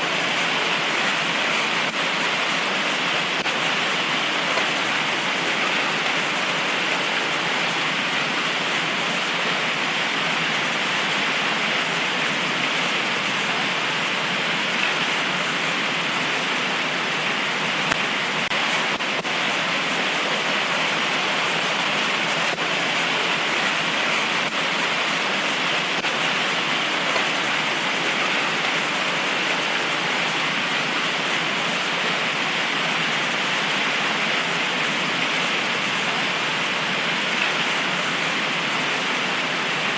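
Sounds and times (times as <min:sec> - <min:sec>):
heavy rain pouring: 0:00.0 - 0:39.9
raindrops spattering: 0:00.0 - 0:39.9.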